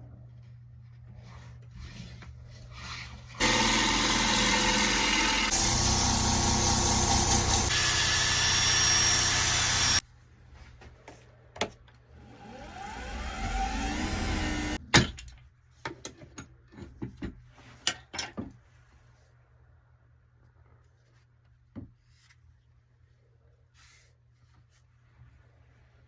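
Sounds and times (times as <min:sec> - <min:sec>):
electric motor whirring: 0:03.4 - 0:10.0, 0:12.2 - 0:14.8.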